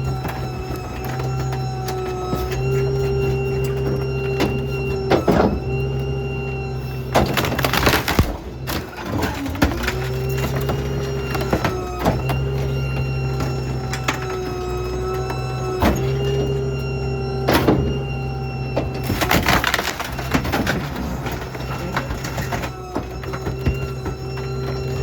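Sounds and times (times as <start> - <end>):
debris cracking and crunching: 0.0 - 25.0
hydraulic whine: 0.0 - 25.0
truck engine hum: 0.0 - 25.0.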